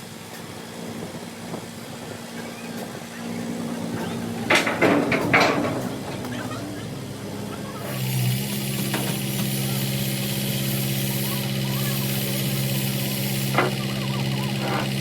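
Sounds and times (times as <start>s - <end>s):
engine idling: 3.1s - 15.0s.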